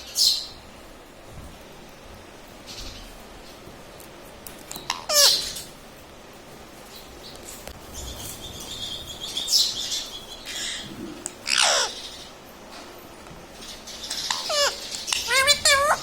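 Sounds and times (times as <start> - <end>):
parrot calling: 4.8 - 5.7, 7.9 - 12.4, 14.0 - 16.0.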